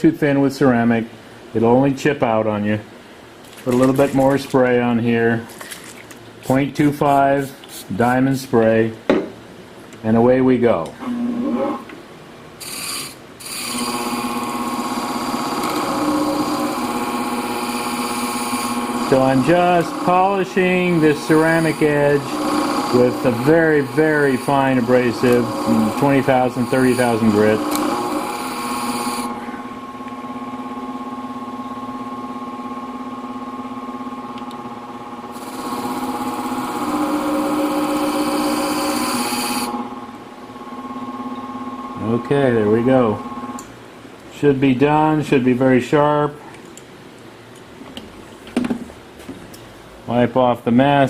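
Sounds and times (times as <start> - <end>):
sharpening machine humming: 12.6 - 43.7.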